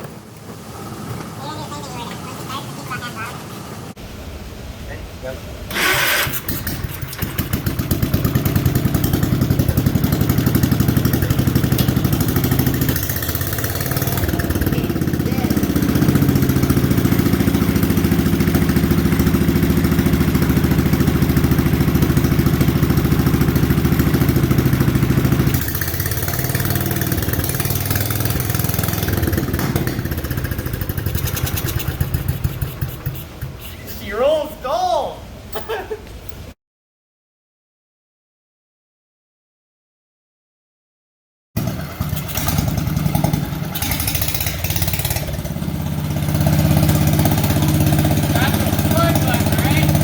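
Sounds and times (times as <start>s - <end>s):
garden tractor engine running: 5.7s - 35.1s, 41.6s - 50.0s.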